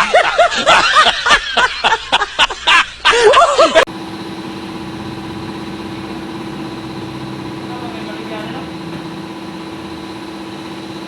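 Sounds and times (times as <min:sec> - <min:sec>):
motorcycle engine idling: 0:03.9 - 0:11.0.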